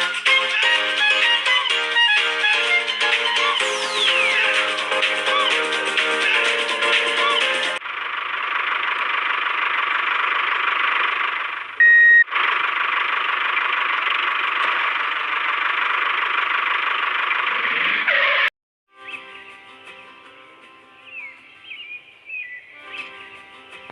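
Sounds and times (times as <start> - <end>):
loud beep: 11.8 - 12.3.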